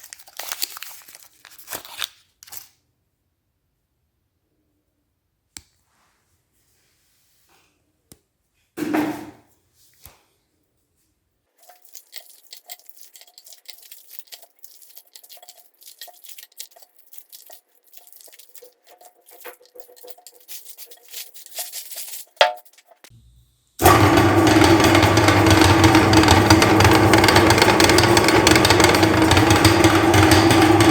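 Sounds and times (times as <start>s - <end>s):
wrapper tearing: 0.0s - 2.8s, 11.6s - 23.1s
wrappers crinkling: 0.0s - 2.8s, 11.6s - 23.1s.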